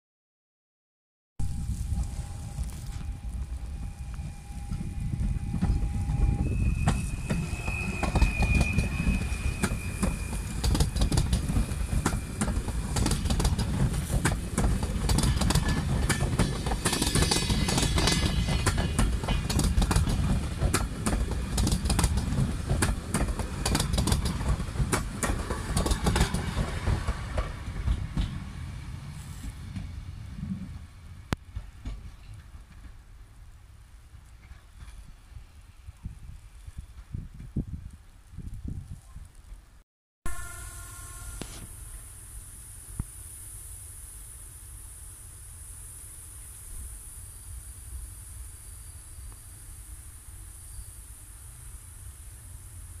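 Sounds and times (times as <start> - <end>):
train rumble: 1.4 - 38.0
thin high squeal: 1.8 - 12.4.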